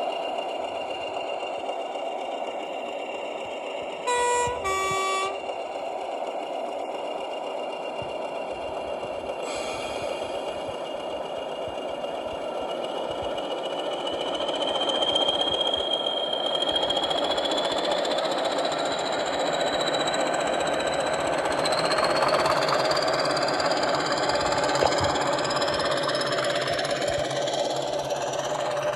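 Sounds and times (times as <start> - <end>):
diesel engine sound from small loudspeaker: 0.2 - 28.9
high whine rising in pitch: 4.1 - 5.5.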